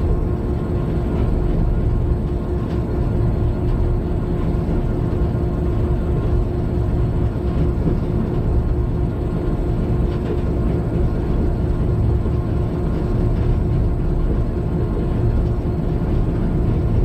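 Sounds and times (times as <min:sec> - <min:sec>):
constant hum: 0:00.0 - 0:17.0
locomotive low rumble: 0:00.0 - 0:17.0.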